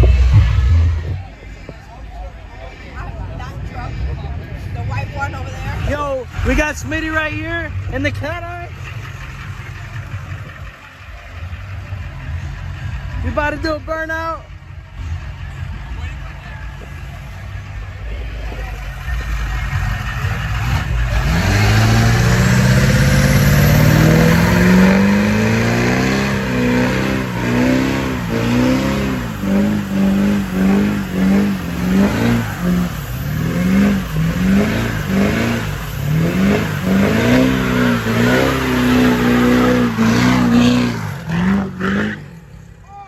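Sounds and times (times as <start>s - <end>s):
truck engine revving hard: 0.0s - 1.7s, 2.7s - 42.8s.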